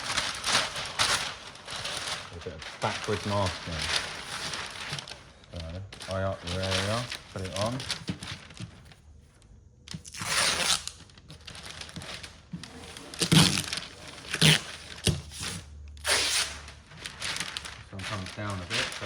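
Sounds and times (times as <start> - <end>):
tape crinkling: 0.0 - 19.0
tape pulled and torn: 9.9 - 11.1, 13.0 - 16.7.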